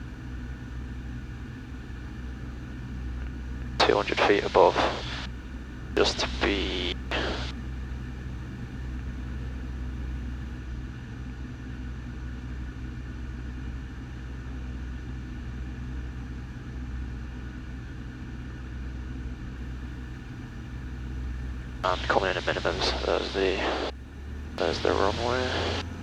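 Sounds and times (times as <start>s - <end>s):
propeller plane engine drone: 0.0s - 10.6s, 19.6s - 26.0s.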